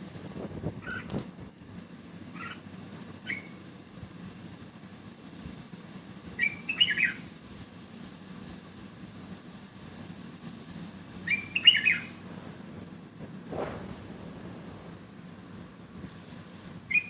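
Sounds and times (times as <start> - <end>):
steady low hum: 0.0 - 17.0
small bird chirping: 2.3 - 3.6, 5.8 - 7.2, 10.7 - 12.2, 16.1 - 17.0.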